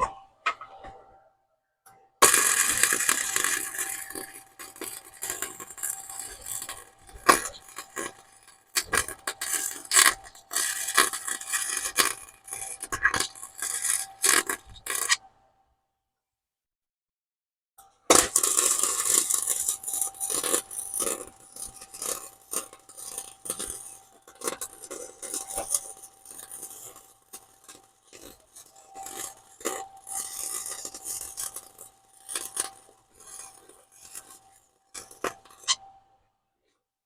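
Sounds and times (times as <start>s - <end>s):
welding arc crackling: 2.2s - 15.1s, 18.2s - 34.4s.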